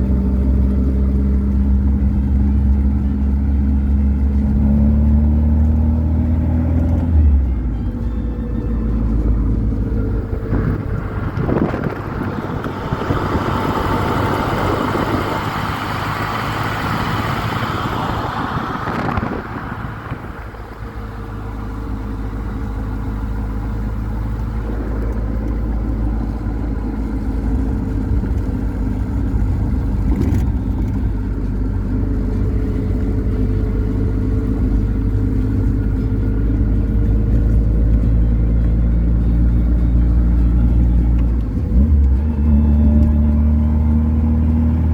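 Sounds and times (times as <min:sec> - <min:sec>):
car engine running: 0:00.0 - 0:44.9
loud rushing noise: 0:10.1 - 0:21.4.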